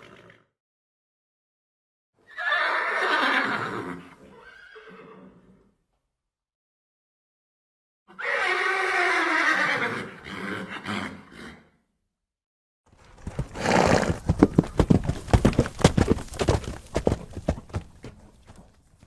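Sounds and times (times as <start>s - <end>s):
horse neighing: 2.2s - 5.7s, 8.1s - 11.7s
rapid hoofbeats: 12.9s - 19.0s.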